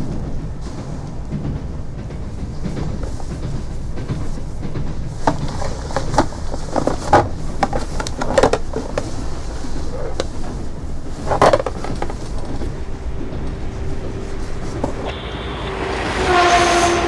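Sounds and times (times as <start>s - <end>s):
train carriage rumble: 0.0s - 17.0s
cloth bundle rustling and knocking: 5.1s - 12.7s.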